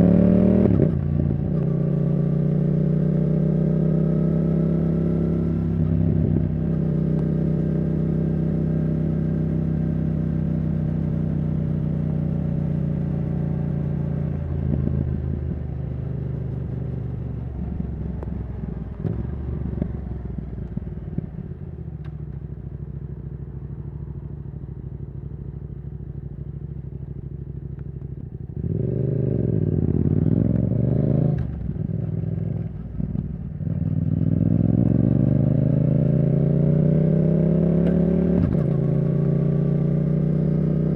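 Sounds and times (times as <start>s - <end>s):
motorcycle engine revving: 0.0s - 22.0s, 28.2s - 40.9s.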